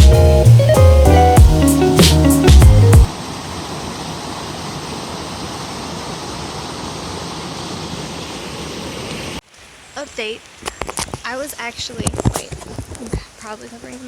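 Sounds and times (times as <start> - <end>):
guitar and drum music: 0.0 - 3.1.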